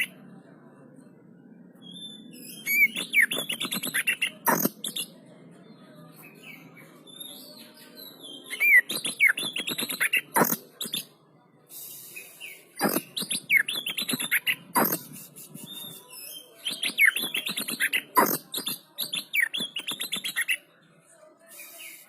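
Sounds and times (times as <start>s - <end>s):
bird singing rapid whistles: 1.9s - 5.0s.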